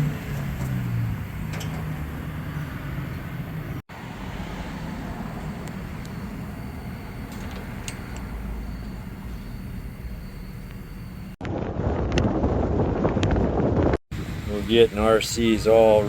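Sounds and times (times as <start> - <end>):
vehicle engine and road noise: 0.0 - 11.4.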